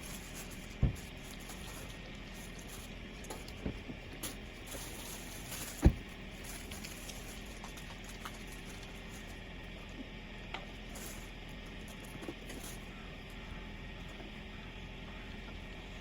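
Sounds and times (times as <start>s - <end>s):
dull thump: 0.8s - 1.1s, 5.7s - 6.2s.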